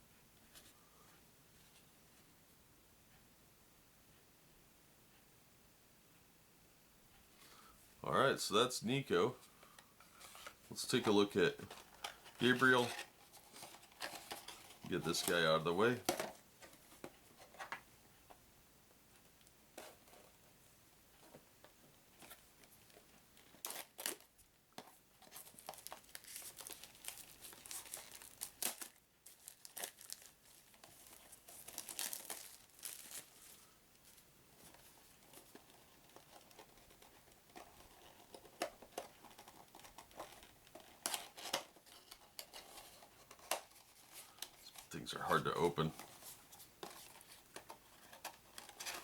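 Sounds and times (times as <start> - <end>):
plastic wrapping crinkling and tearing: 11.0 - 16.3, 22.8 - 24.4, 25.2 - 49.0.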